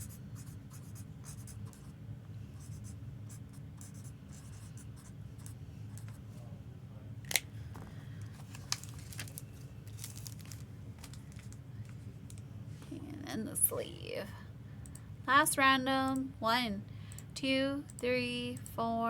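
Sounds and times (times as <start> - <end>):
steady low hum: 0.0 - 19.0
faint handling noises: 7.2 - 13.0.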